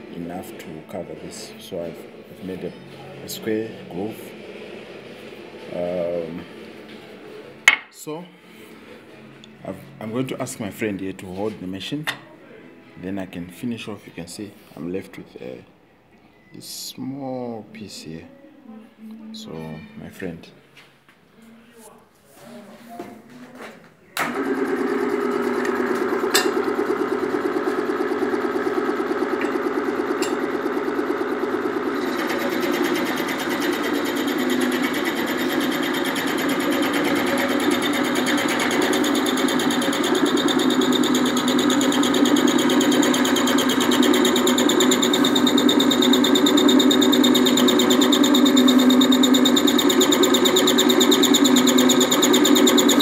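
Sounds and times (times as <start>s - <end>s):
lathe running: 24.2s - 53.0s
gritty metal cutting: 32.0s - 53.0s.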